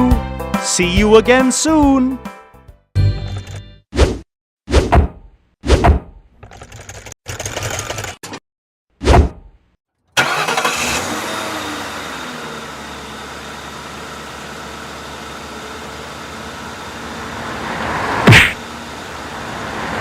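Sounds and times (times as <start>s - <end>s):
cartoon vehicle engine: 10.1s - 20.0s.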